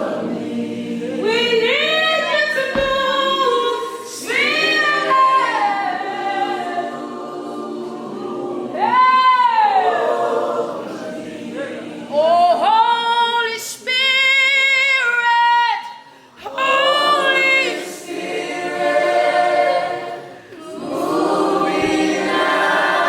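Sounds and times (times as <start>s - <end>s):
group singing a cappella: 0.0s - 23.0s
low thump: 2.7s - 3.4s, 21.8s - 22.2s.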